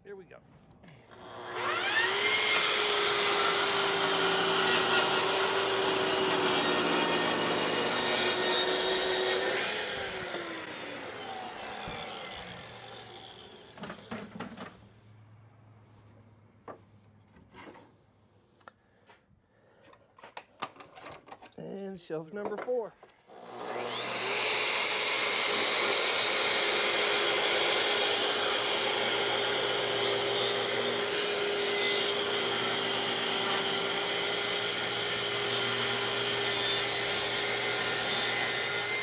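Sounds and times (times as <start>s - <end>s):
saw blade winding down whine: 1.1s - 14.3s, 23.4s - 39.0s
track saw cutting wood: 1.1s - 14.7s, 23.3s - 39.0s.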